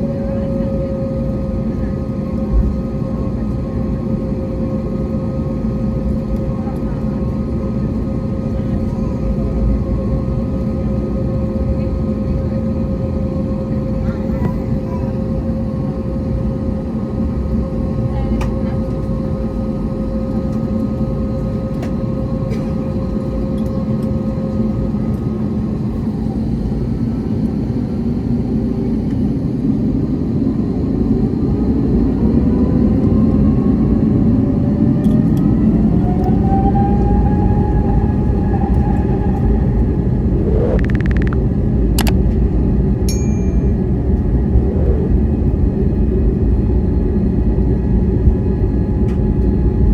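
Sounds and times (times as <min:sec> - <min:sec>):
jet engines rumbling: 0:00.0 - 0:49.9
sharp clicks: 0:40.7 - 0:41.4.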